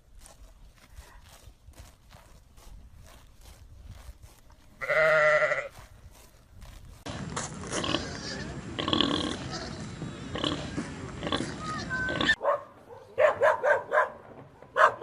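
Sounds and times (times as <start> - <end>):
farm animal bleating: 4.6 - 5.9, 7.7 - 12.4
animal noises: 7.6 - 12.4.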